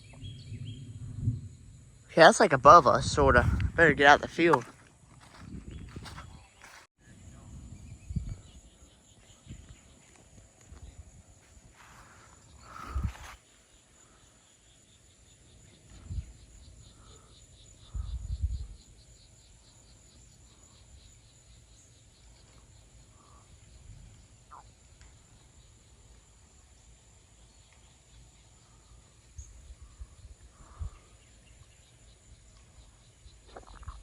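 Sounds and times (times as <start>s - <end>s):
insects chirping: 0.0s - 34.0s
low thumps: 2.9s - 4.2s.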